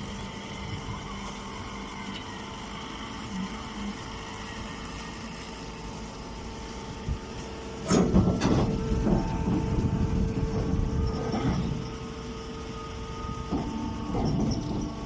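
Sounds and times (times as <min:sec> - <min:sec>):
baler motor hum: 0:00.0 - 0:15.0
baler rattling working cycle: 0:00.0 - 0:15.0
loud mechanical clank: 0:07.8 - 0:11.9, 0:13.5 - 0:15.0.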